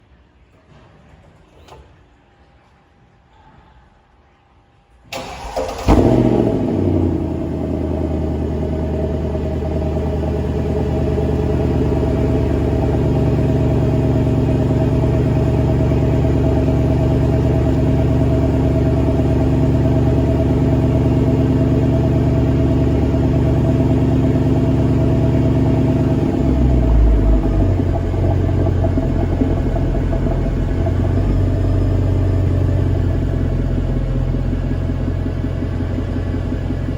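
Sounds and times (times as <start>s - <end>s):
car engine starting and idling: 5.1s - 36.9s.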